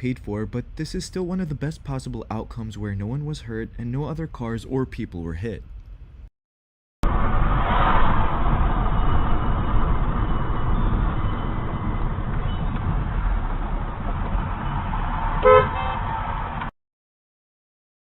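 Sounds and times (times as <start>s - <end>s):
car driving rumble: 7.0s - 16.7s
car horn honk: 15.4s - 16.2s.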